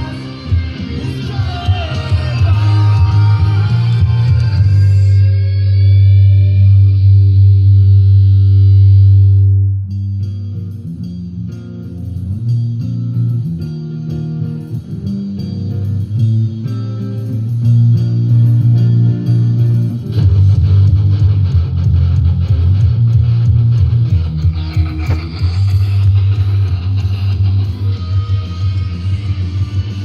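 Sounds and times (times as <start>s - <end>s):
full rock band playing: 0.0s - 5.5s, 13.2s - 30.0s
bass guitar: 0.0s - 30.0s
picked electric guitar line: 0.0s - 30.0s.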